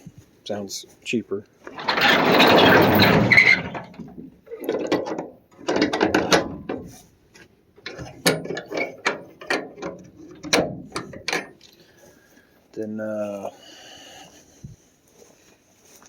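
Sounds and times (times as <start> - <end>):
clattering clicks and knocks: 1.6 - 11.8.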